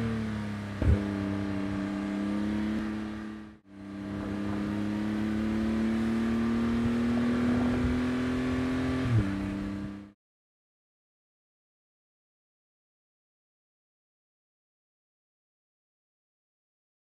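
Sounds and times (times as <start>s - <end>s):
car engine running: 0.0s - 10.1s
gear shift thump: 0.8s - 1.2s.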